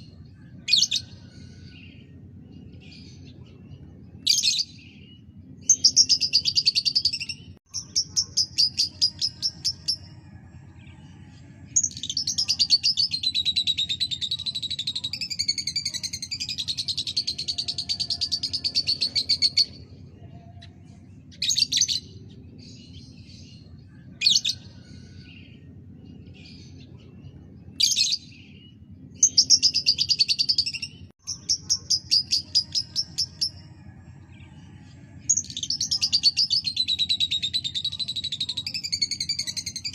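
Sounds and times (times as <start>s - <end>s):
low background hum: 0.0s - 39.9s.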